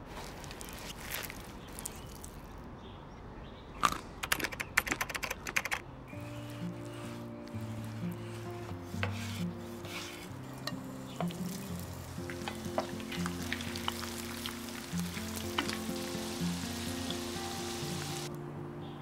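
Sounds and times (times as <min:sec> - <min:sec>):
soft background music: 0:05.8 - 0:19.0
pork fat sizzling and crackling: 0:06.1 - 0:18.3.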